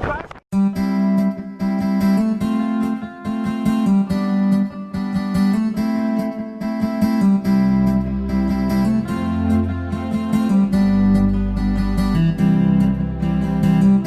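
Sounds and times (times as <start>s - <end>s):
acoustic guitar music: 0.6s - 14.0s
low bass line: 7.4s - 14.0s.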